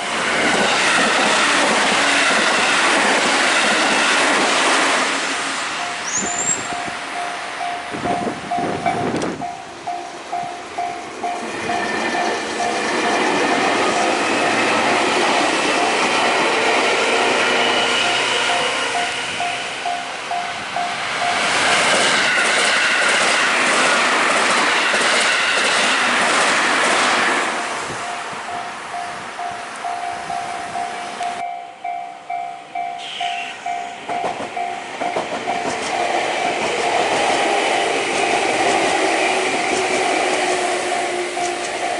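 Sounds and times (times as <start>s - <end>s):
electric train passing: 0.0s - 41.9s
level crossing warning bell: 5.7s - 14.8s, 17.7s - 22.0s, 27.6s - 35.8s
rail-joint clicks: 5.8s - 16.5s, 18.0s - 41.9s.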